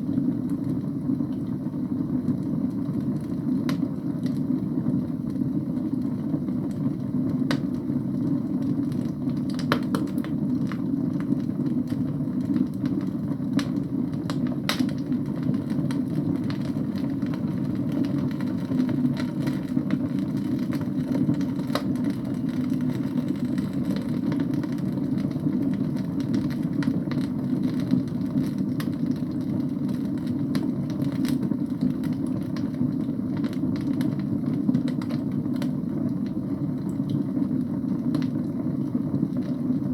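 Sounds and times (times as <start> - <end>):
logs crackling and popping: 8.9 - 13.0, 13.6 - 15.1.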